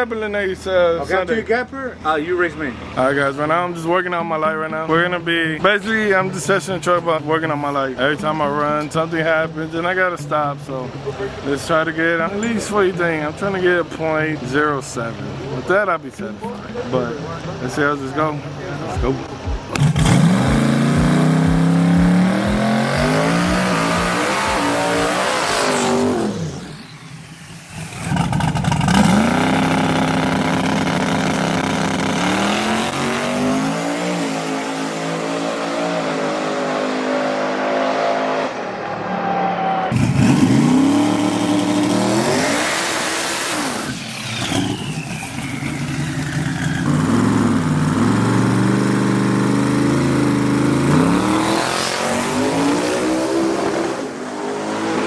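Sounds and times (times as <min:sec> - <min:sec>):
truck engine at full throttle: 0:18.2 - 0:39.0, 0:39.9 - 0:55.0.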